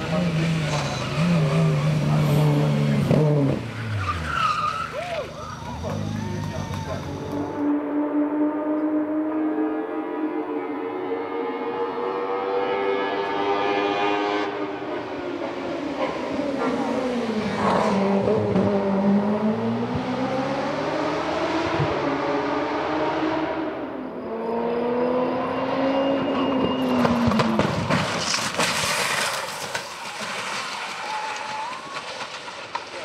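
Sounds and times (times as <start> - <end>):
race car engine at full throttle: 0.0 - 28.5.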